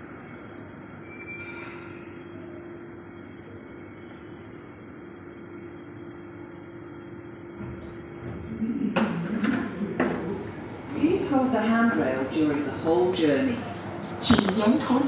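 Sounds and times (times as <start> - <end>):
train humming: 7.6 - 15.0.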